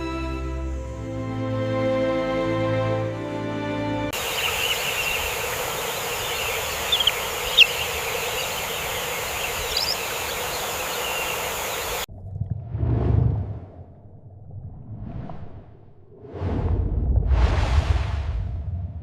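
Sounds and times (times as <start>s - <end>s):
insects hissing: 0.0s - 1.8s, 4.2s - 12.1s
high bird chirps: 4.2s - 12.1s.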